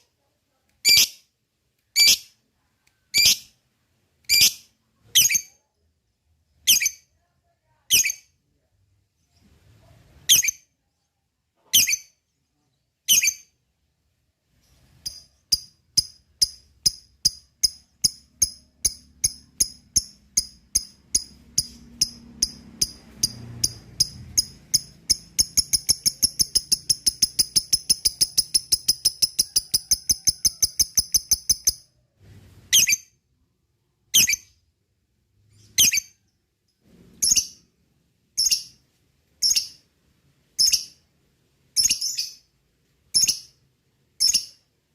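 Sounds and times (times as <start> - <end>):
lovebird chirps: 0.8 - 1.3, 1.9 - 2.4, 3.0 - 3.6, 4.3 - 5.6, 6.6 - 7.1, 7.9 - 8.4, 10.2 - 11.1, 11.7 - 13.6, 14.6 - 31.9, 32.7 - 33.2, 34.1 - 34.6, 35.5 - 36.4, 37.2 - 37.7, 38.4 - 38.8, 39.4 - 39.9, 40.6 - 41.1, 41.7 - 42.5, 43.1 - 43.6, 44.2 - 44.7
rapid chattering bird trill: 15.1 - 31.8.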